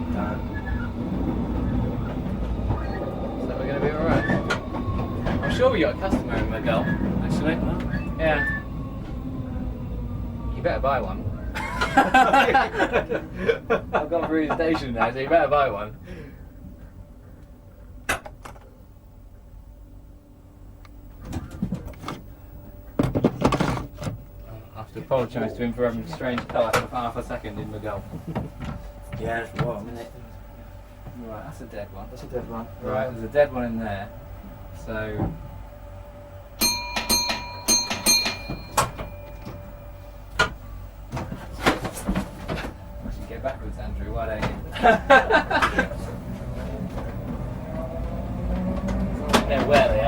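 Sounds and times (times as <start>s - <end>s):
electric train low hum: 0.0s - 50.0s
knocks and clatter: 22.9s - 24.2s, 36.9s - 39.7s
train cab bell ringing: 36.6s - 40.9s.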